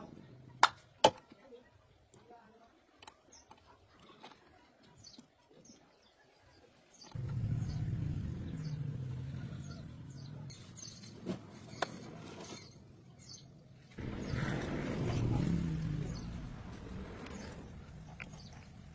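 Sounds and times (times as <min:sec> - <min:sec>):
birds chirping: 0:04.9 - 0:18.9
engine starting and rumbling: 0:07.1 - 0:11.2, 0:14.0 - 0:18.9.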